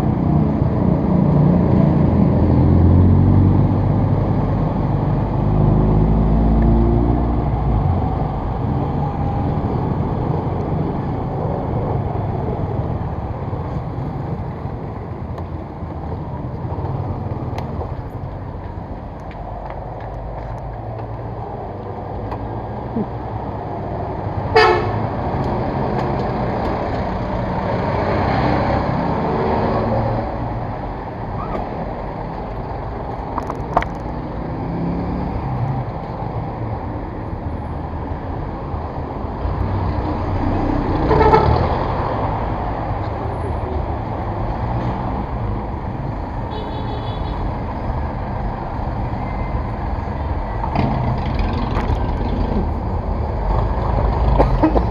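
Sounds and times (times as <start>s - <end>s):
road traffic: 0.0s - 54.9s
vehicle horn toots: 24.6s - 25.0s, 41.1s - 41.6s, 46.5s - 47.4s.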